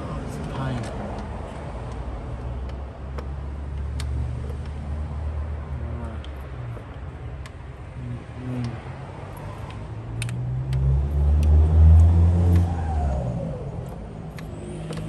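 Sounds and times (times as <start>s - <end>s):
metallic clicks of hand tools: 8.6s - 12.7s, 13.6s - 15.0s
car passing by: 9.2s - 15.0s.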